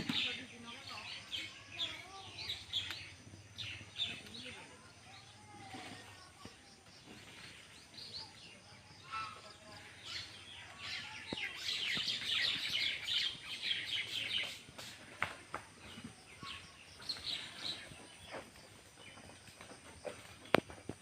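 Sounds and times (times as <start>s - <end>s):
nestling birds chirping: 0.0s - 21.0s.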